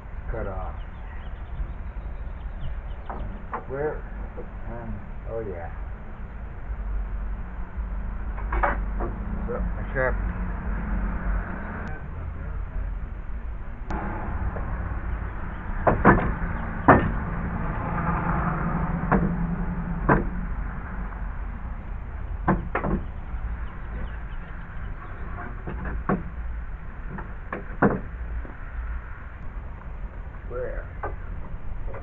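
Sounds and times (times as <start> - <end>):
steady low rumble: 0.0 - 32.0
knocks and clunks of boards: 15.8 - 17.2, 20.1 - 20.4, 22.4 - 23.1, 25.2 - 26.4, 27.1 - 28.6.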